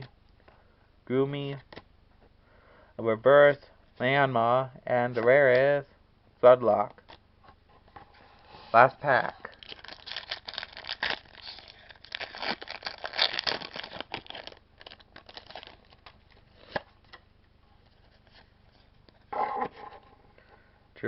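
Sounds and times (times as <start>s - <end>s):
foil wrapper tearing and crinkling: 9.5s - 16.8s.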